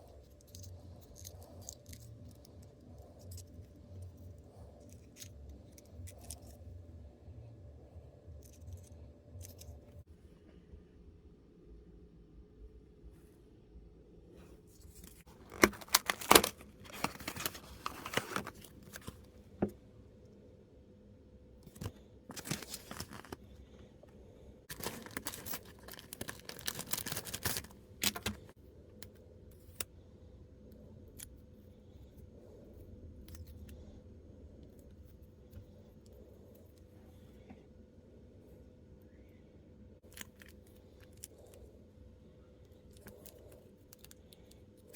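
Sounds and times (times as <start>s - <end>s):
plastic crinkling and tearing: 14.8s - 19.3s, 21.6s - 23.4s, 24.7s - 28.5s.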